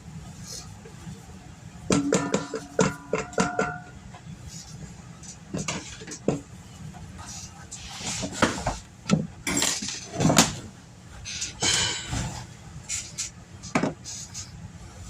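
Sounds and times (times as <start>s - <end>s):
dishes and utensils clinking: 1.9s - 4.0s, 9.4s - 10.6s, 11.4s - 12.3s.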